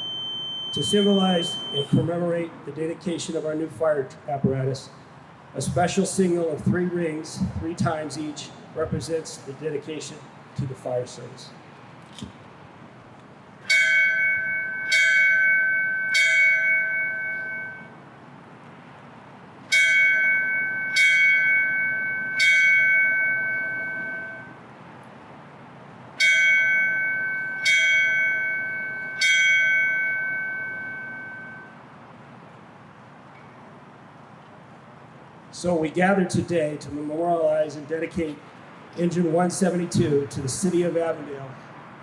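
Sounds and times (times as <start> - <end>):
fire bell ringing: 0.0 - 2.1, 13.6 - 18.0, 19.7 - 24.6, 26.2 - 31.9.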